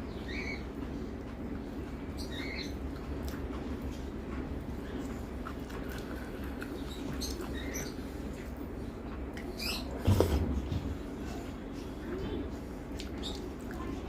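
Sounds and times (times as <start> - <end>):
steady low hum: 0.0 - 14.0
wet chewing clicks: 2.9 - 4.0, 4.8 - 8.5, 12.9 - 13.8.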